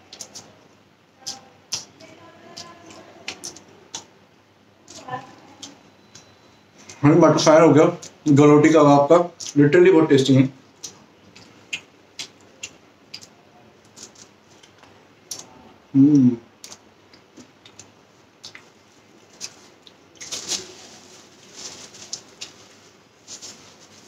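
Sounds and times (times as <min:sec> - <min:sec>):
chewing and mouth sounds: 0:09.4 - 0:09.6, 0:10.7 - 0:20.4
person humming: 0:15.9 - 0:16.4
crunchy rustling: 0:16.6 - 0:24.0.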